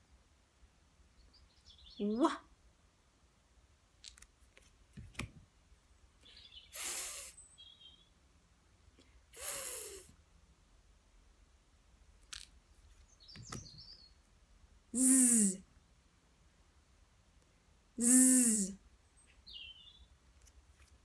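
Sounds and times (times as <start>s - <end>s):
faint bird chirps: 1.2s - 2.5s, 6.2s - 8.2s, 13.0s - 14.2s, 15.0s - 15.6s, 18.0s - 20.2s
woman saying a phonics sound: 2.0s - 2.5s, 15.0s - 15.7s, 18.0s - 18.8s.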